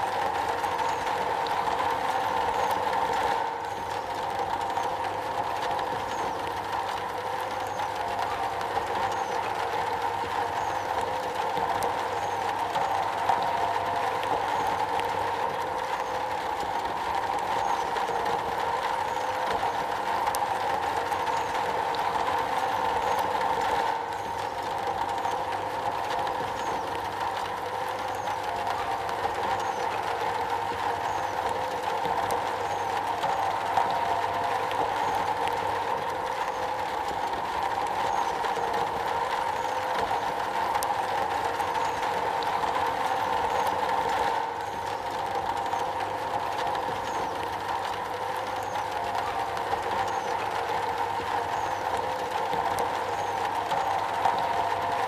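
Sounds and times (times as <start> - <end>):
rain on a metal roof: 0.0 - 55.0.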